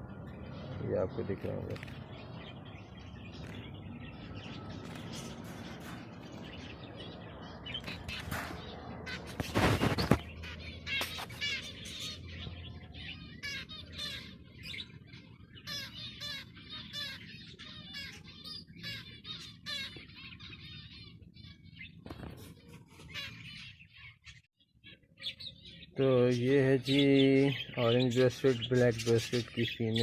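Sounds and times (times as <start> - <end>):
finches chirping: 0.1 - 30.0.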